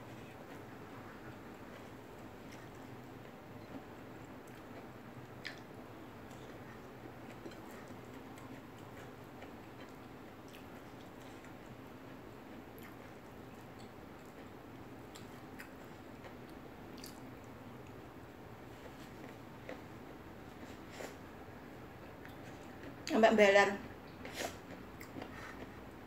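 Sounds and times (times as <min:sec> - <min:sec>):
low steady hum: 0:00.0 - 0:26.0
faint chewing: 0:00.1 - 0:23.1, 0:23.8 - 0:26.0.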